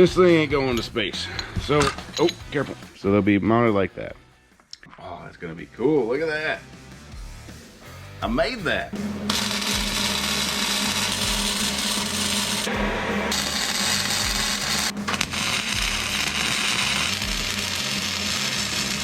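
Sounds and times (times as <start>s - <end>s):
background music: 0.0s - 19.0s
power tool grinding metal: 8.9s - 19.0s.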